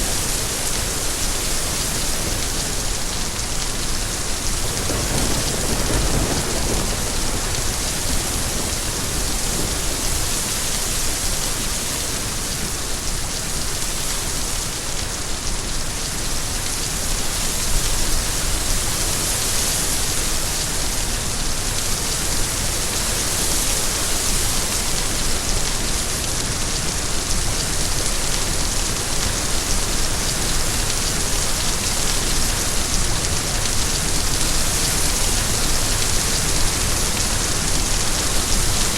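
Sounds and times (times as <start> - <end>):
steady rain falling: 0.0 - 38.9
low thunder rumble: 4.6 - 10.3.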